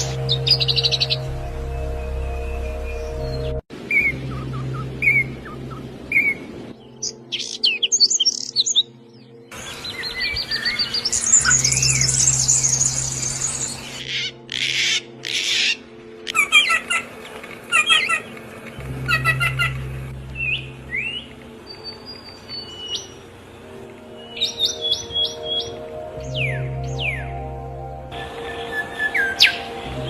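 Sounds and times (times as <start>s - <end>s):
low steady drone: 0.0s - 7.3s, 18.3s - 24.2s, 25.3s - 30.0s
songbirds chirping: 0.0s - 30.0s.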